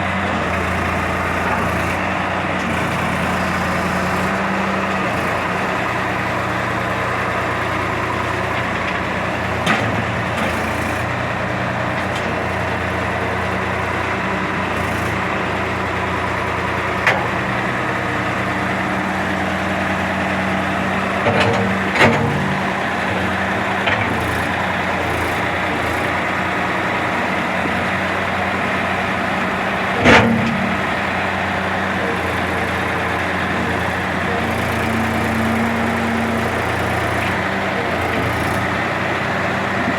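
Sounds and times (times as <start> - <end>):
tractor engine running: 0.0 - 39.9
sharp knocks and clanks: 21.2 - 23.2, 29.8 - 31.1.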